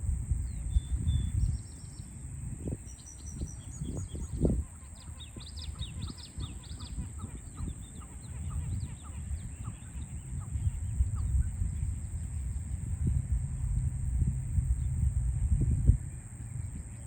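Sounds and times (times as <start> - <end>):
low rumble of city noise: 0.0 - 17.0
birds chirping: 2.9 - 12.8.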